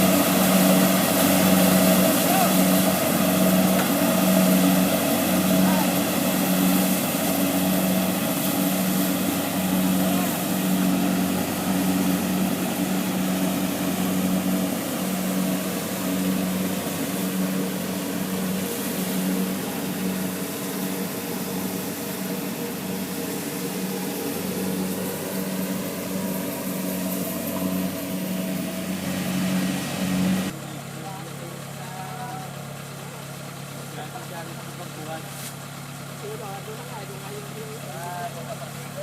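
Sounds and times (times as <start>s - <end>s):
combine harvester engine drone: 0.0s - 39.0s.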